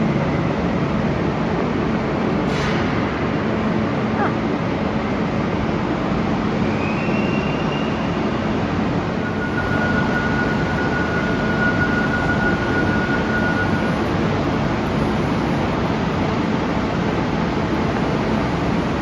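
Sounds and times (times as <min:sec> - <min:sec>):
train rail rumble: 0:09.1 - 0:19.0
high squealing tones: 0:09.2 - 0:19.0.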